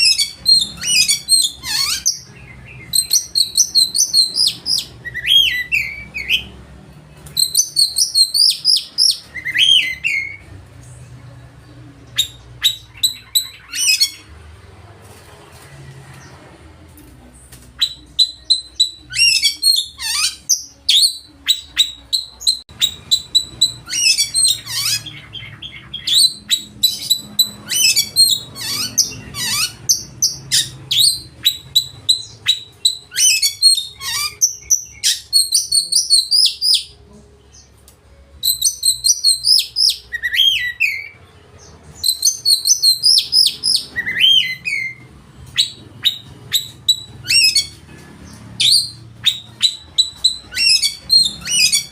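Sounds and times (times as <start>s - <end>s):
bird singing fast chirps and trills: 0.0s - 6.5s, 7.4s - 10.4s, 17.8s - 36.9s, 38.4s - 45.0s, 45.6s - 47.9s, 48.6s - 51.9s.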